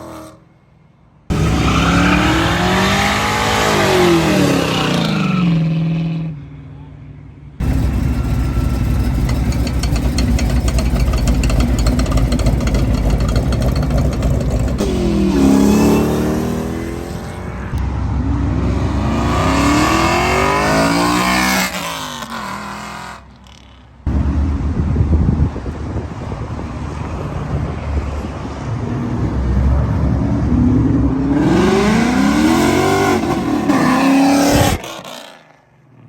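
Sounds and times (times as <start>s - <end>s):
car engine revving: 1.3s - 5.5s, 7.6s - 23.3s, 30.0s - 35.4s.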